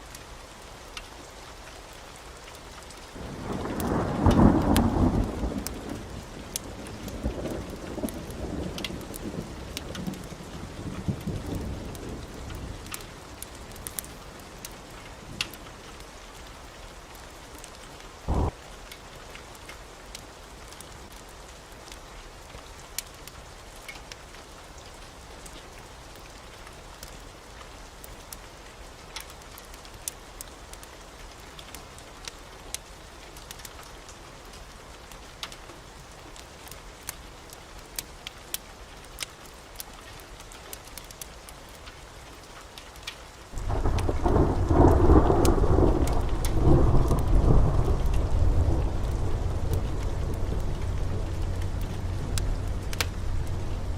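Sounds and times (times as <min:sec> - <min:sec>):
heavy rain: 0:00.0 - 0:53.9
thunder rumbling: 0:03.2 - 0:14.1, 0:18.3 - 0:18.6, 0:43.6 - 0:53.9.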